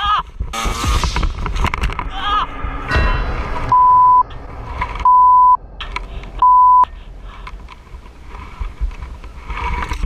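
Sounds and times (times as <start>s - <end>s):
road and vehicle noise: 0.0s - 10.0s
censor bleeps: 3.7s - 4.2s, 5.0s - 5.6s, 6.4s - 6.9s.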